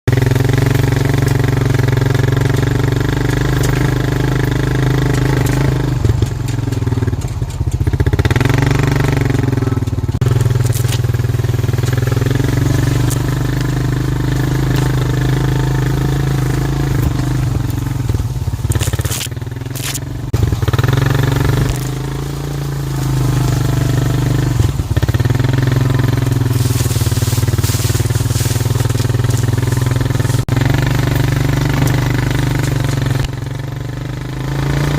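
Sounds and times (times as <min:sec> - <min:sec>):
atv engine running: 0:00.0 - 0:34.9
rattling clatter: 0:00.2 - 0:33.6.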